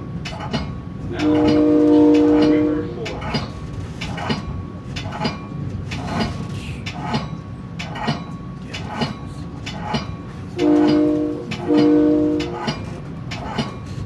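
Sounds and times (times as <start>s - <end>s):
train wheels clicking over rail joints: 0.0s - 14.0s
multi-tone train horn: 1.0s - 3.4s, 10.5s - 13.1s.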